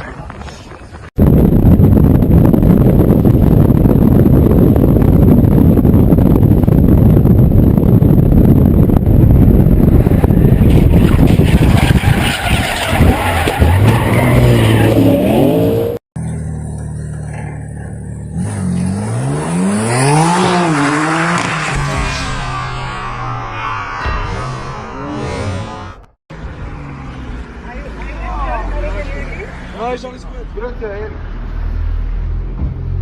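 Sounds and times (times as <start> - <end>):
another car engine: 1.2 - 27.6
car engine revving: 2.3 - 27.6
car tyres skidding: 10.0 - 15.8.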